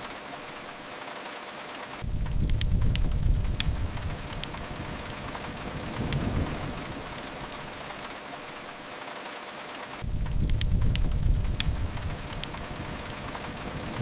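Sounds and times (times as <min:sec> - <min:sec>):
rain hiss: 0:00.0 - 0:14.0
wood fire crackles: 0:00.0 - 0:14.0
low rumble: 0:02.0 - 0:08.0, 0:10.0 - 0:14.0.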